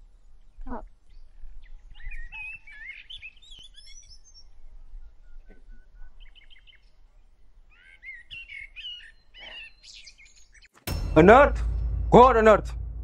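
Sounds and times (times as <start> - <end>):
small birds chirping: 0.0 - 10.8
faint low rumble: 10.9 - 13.0.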